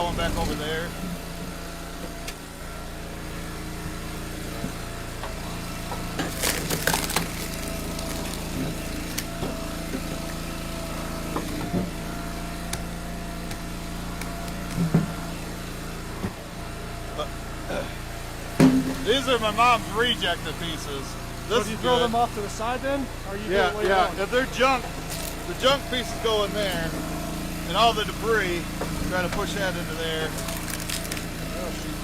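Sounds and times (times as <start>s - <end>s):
log splitter engine running: 0.0s - 32.0s
knocks of split wood pieces: 6.0s - 10.4s, 30.2s - 31.4s
wood cracking and splintering: 6.2s - 9.4s, 30.2s - 31.4s.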